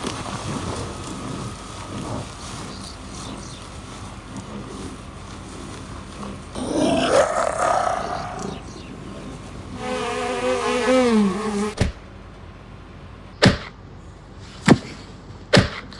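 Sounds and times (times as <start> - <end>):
animal wavering call: 6.6 - 9.1.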